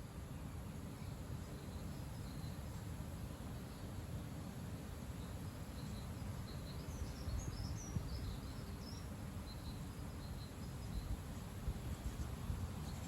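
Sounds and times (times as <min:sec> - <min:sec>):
small birds chirping: 0:00.0 - 0:04.1, 0:04.7 - 0:13.0
wind buffeting microphone: 0:06.7 - 0:13.0.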